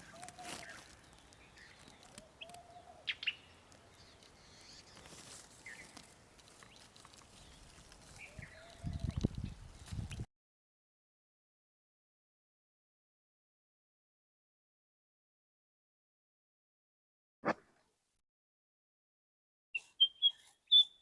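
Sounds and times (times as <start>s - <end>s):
forest birds chirping: 0.0s - 10.2s, 19.7s - 21.0s
birds whistling: 19.8s - 21.0s.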